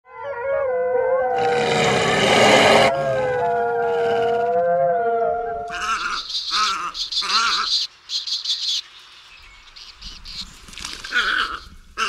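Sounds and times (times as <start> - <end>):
wolves howling: 0.1 - 6.2.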